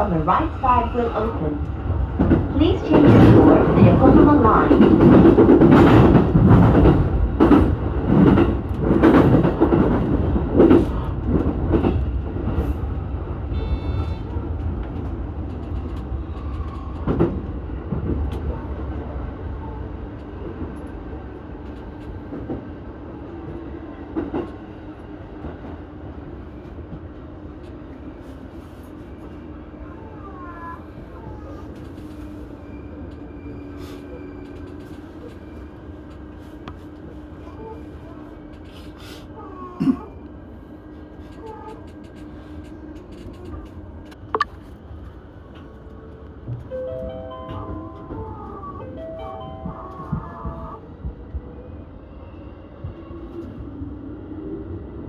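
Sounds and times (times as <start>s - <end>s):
train low hum: 0.0s - 55.0s
train wheels clattering over rails: 2.1s - 12.8s.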